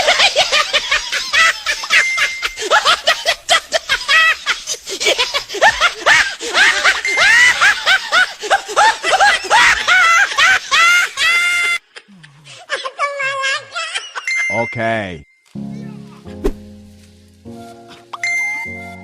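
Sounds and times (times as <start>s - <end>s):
high-pitched laughter and giggling: 0.0s - 14.5s.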